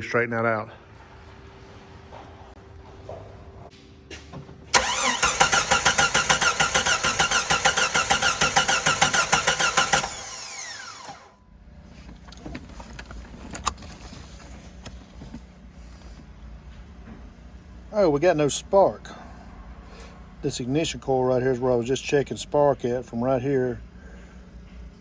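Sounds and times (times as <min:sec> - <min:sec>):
car engine cranking on starter: 0:04.7 - 0:11.3, 0:12.1 - 0:15.4
starter whining down: 0:04.7 - 0:11.4.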